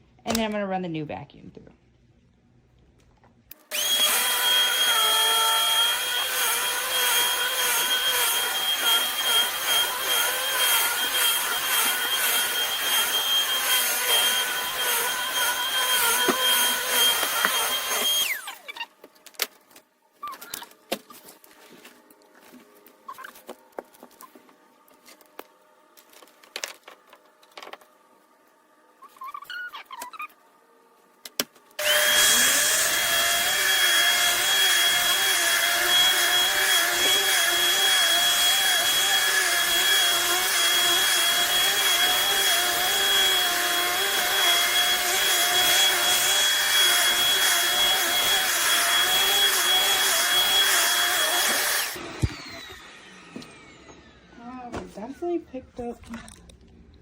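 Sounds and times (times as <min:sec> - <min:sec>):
vacuum cleaner running: 0:03.6 - 0:18.7, 0:31.8 - 0:55.4.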